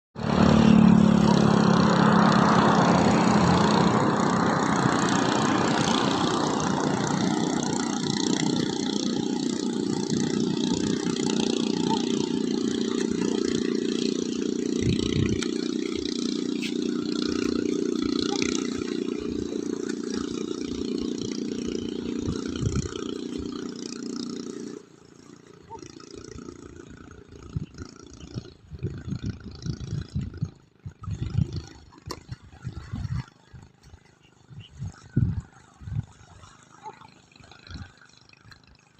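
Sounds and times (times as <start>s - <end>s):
boat engine droning: 0.2s - 38.9s
wind noise: 14.7s - 15.5s, 22.2s - 23.1s, 27.4s - 36.5s.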